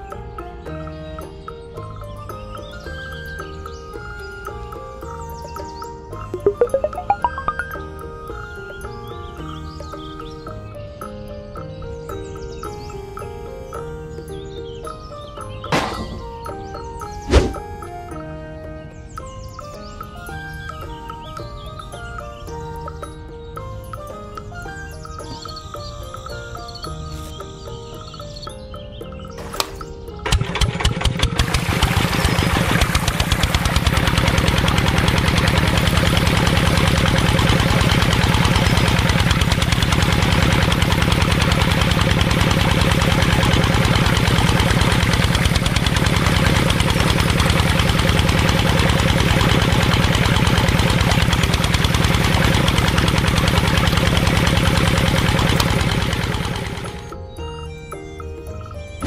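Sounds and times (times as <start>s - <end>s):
model diesel engine chugging: 30.2s - 57.1s.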